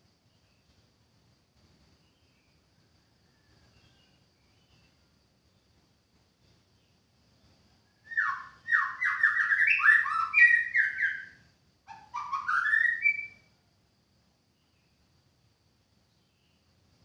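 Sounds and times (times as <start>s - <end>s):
bird singing whistled notes: 8.0s - 13.5s.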